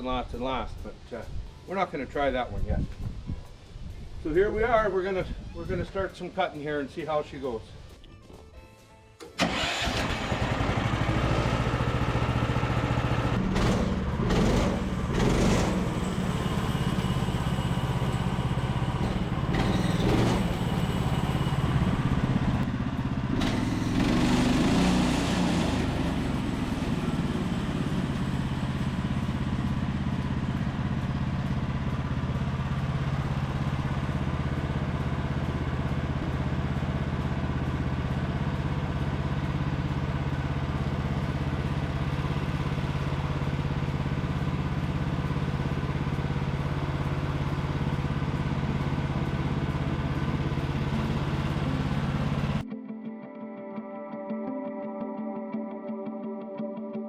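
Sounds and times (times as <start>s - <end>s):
sawmill engine running: 9.4s - 52.6s.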